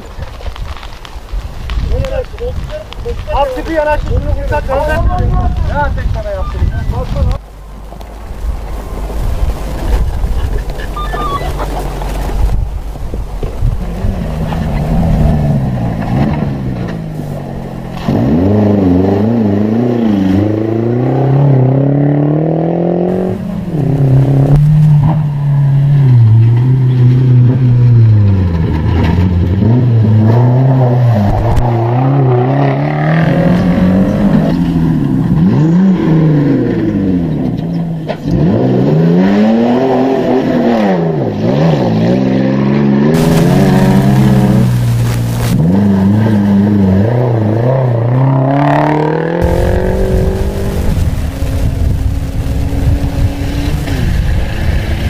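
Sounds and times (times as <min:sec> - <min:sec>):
engine revving hard: 0:38.2 - 0:55.0.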